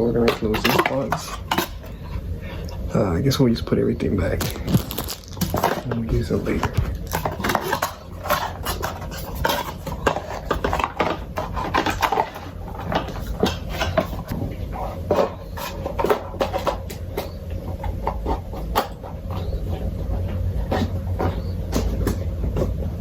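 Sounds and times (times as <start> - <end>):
steady low hum: 0.0 - 23.0
plastic parts clicking and rustling: 4.4 - 14.4.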